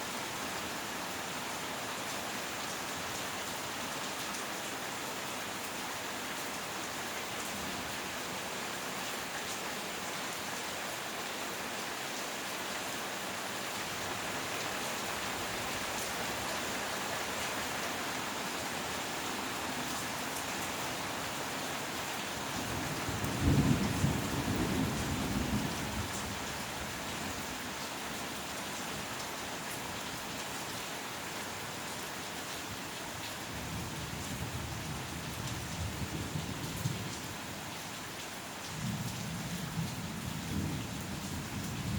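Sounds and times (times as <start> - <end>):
heavy rain: 0.0 - 41.9.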